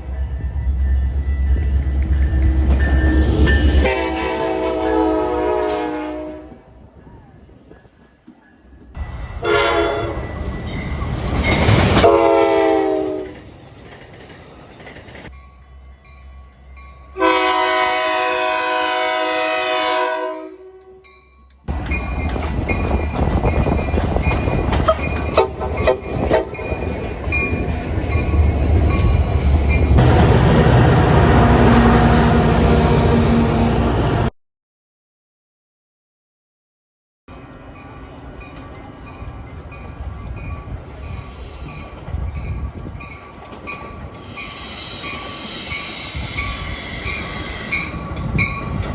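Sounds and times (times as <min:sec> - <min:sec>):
train rumbling past: 0:00.0 - 0:34.3, 0:37.3 - 0:48.9
locomotive air horn blasts: 0:03.8 - 0:06.7, 0:09.4 - 0:10.2, 0:12.0 - 0:13.3, 0:17.2 - 0:21.1, 0:25.3 - 0:26.7
wheels clicking over rail joints: 0:12.9 - 0:15.3, 0:21.5 - 0:29.9, 0:37.7 - 0:48.9.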